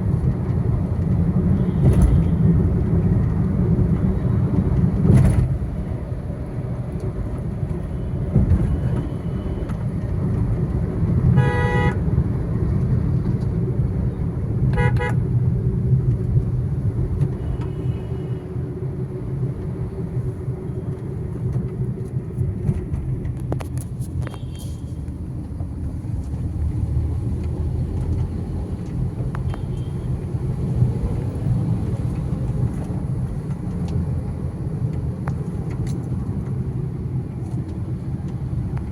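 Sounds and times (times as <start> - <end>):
road traffic rumble: 0.0 - 38.9
vehicle horn honking: 11.4 - 12.0, 14.8 - 15.2.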